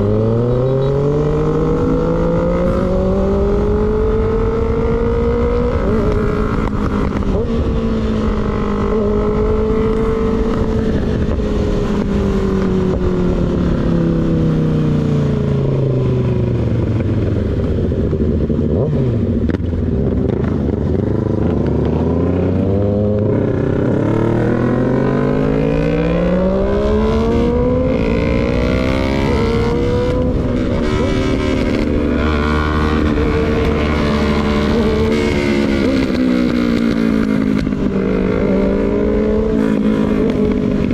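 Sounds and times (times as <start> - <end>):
motorcycle engine: 0.0 - 40.9.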